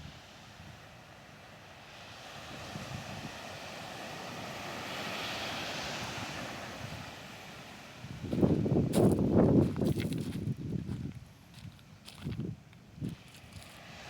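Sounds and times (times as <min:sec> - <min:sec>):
rushing wind: 0:00.0 - 0:14.0
wind gusts buffeting microphone: 0:08.0 - 0:13.7.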